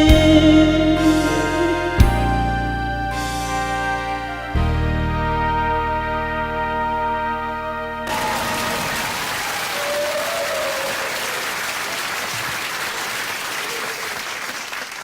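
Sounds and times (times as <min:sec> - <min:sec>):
held music chord: 0:00.0 - 0:08.8
audience applauding: 0:08.1 - 0:15.0.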